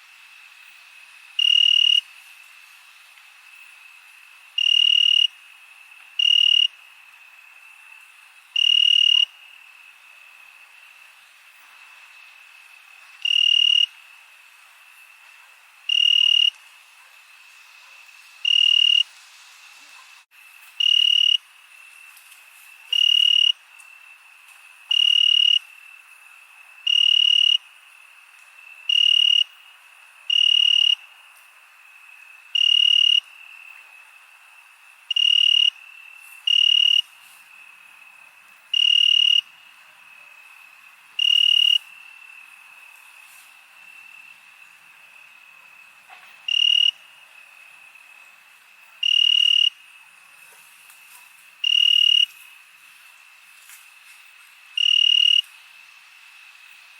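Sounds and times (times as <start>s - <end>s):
loud cricket trill: 0.0s - 15.2s, 15.9s - 16.6s, 17.5s - 19.8s, 20.4s - 56.9s
background cricket trill: 0.0s - 56.9s.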